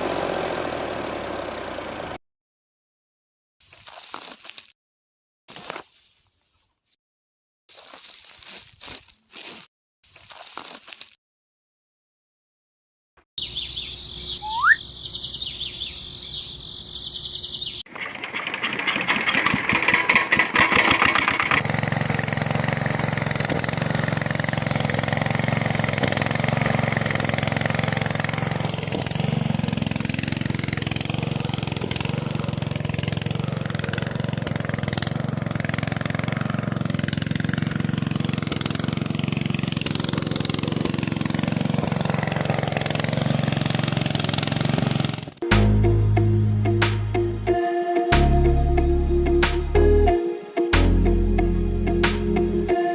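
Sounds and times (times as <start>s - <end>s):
small engine running: 0.0s - 2.2s, 13.4s - 46.0s
rising whistle: 14.3s - 14.9s
fast clattering: 17.9s - 22.4s.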